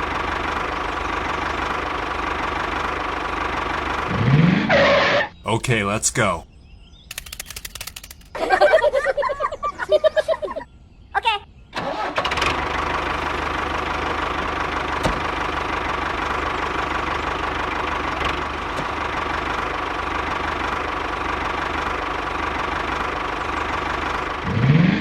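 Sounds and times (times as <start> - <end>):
small tractor engine running: 0.0 - 4.6, 11.8 - 25.0.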